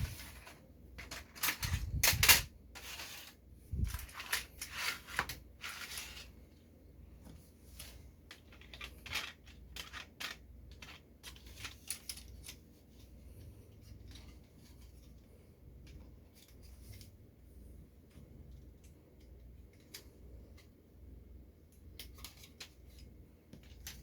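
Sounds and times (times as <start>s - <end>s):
plastic toy and packaging handling: 0.0s - 6.6s, 7.2s - 17.3s, 21.8s - 24.0s.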